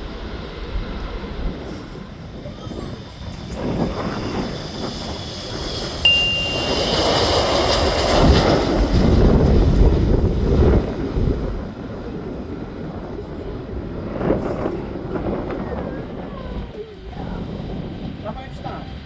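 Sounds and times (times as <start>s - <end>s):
jet engines roaring: 0.0s - 19.0s
sharp ding: 6.1s - 7.5s.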